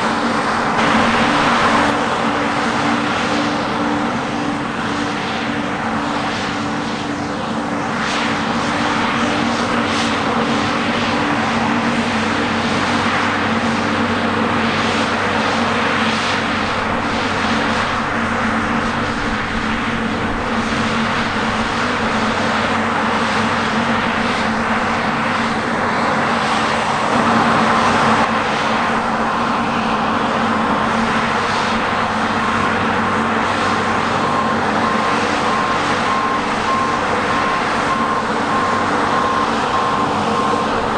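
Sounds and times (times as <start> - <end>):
reversing beeper beeps: 0.0 - 1.9, 16.4 - 28.3, 31.6 - 40.9
diesel machinery engine drone: 0.0 - 40.9.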